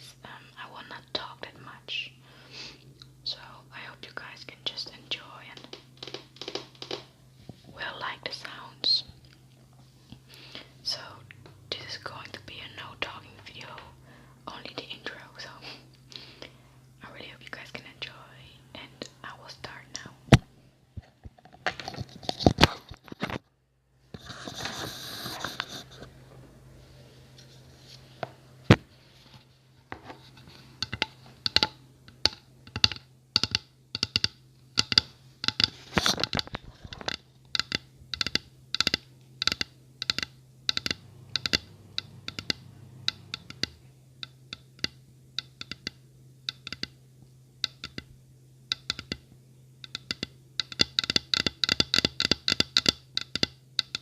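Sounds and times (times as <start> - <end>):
faint steady hum: 0.0 - 54.0
scratching close to microphone: 21.1 - 23.4, 24.1 - 26.1, 35.6 - 37.2.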